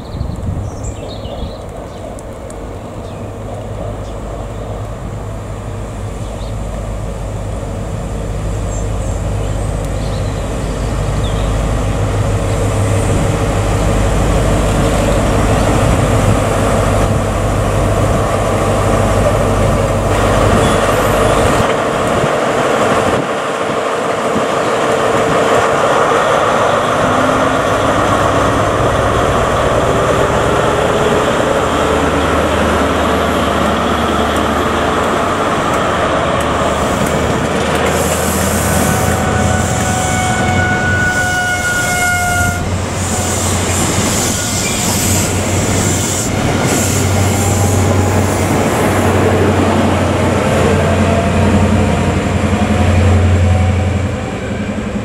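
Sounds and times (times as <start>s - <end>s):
wheels rushing on rail: 0.0s - 55.0s
diesel engine hum: 25.7s - 40.5s.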